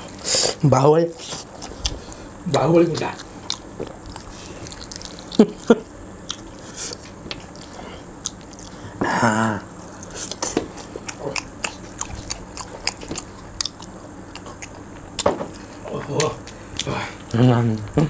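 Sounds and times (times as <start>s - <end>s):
people chewing food: 0.0s - 18.0s
person humming: 9.0s - 9.7s.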